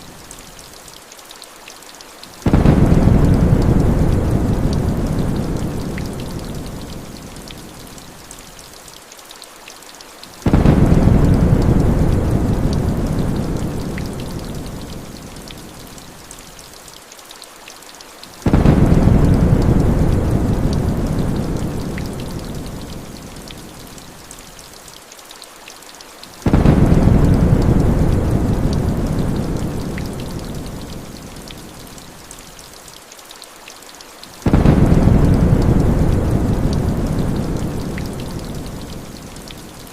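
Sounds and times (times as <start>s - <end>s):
heavy rain: 0.0s - 39.9s
thunder rolling: 2.5s - 5.8s, 10.5s - 13.8s, 18.5s - 21.8s, 26.5s - 29.9s, 34.5s - 38.2s.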